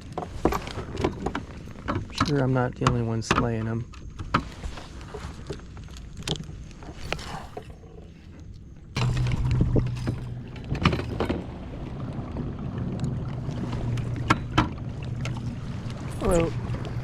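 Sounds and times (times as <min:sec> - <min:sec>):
clicks and knocks on kayak: 0:00.0 - 0:07.3
water noise: 0:00.0 - 0:17.0
electric trolling motor humming: 0:06.8 - 0:17.0.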